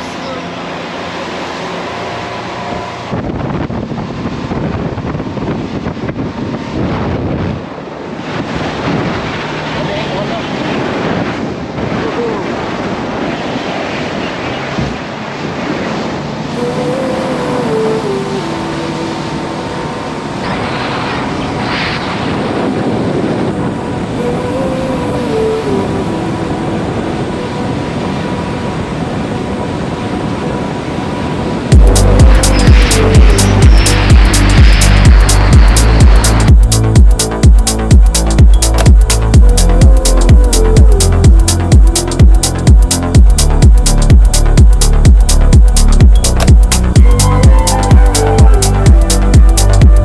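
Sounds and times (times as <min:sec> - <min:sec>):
speedboat engine running: 0:00.0 - 0:50.0
wind buffeting microphone: 0:02.7 - 0:50.0.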